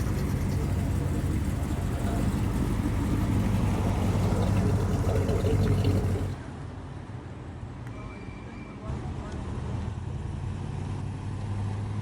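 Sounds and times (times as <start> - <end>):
car engine idling: 0.0 - 6.4.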